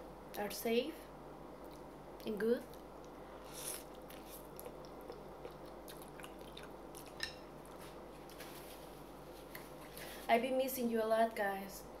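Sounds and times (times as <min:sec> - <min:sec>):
soft chewing with wet clicks: 0:01.6 - 0:08.4.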